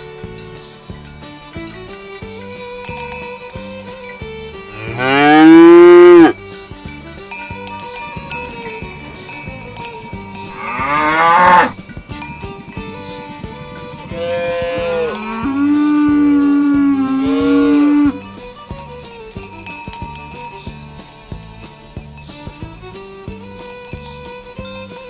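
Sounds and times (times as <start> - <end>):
background music with steady beat: 0.0 - 25.0
cattle mooing: 4.7 - 6.4, 10.5 - 11.8, 14.1 - 18.2.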